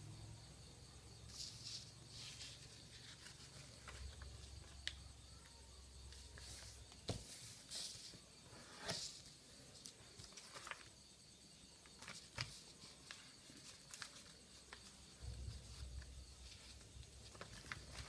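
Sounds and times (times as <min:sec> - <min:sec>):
paper crinkling and rustling: 0:01.3 - 0:05.0, 0:09.8 - 0:11.0, 0:11.9 - 0:18.0.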